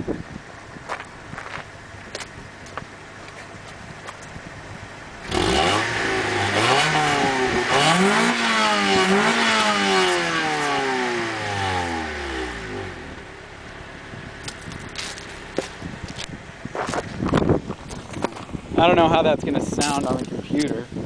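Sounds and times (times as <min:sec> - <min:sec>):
car engine revving: 0:04.9 - 0:18.4.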